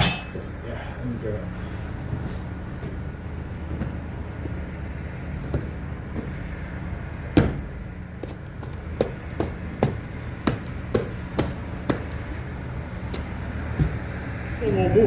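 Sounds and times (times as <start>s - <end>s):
sharp knocks and clanks: 0.0s - 0.6s, 5.4s - 6.5s, 7.2s - 12.4s, 13.1s - 14.8s
engine humming: 0.0s - 15.0s.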